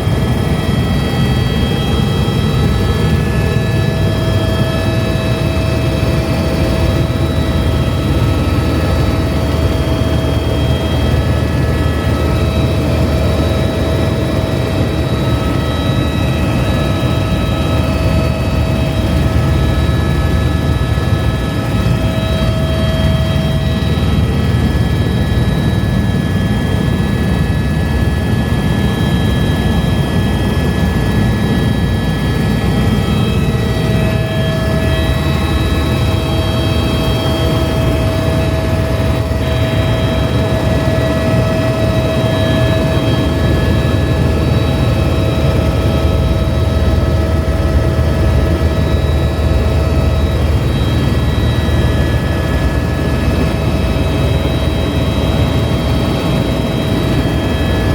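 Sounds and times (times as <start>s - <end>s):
helicopter rotor and engine drone: 0.0s - 57.9s
steady whining tones: 0.0s - 57.9s.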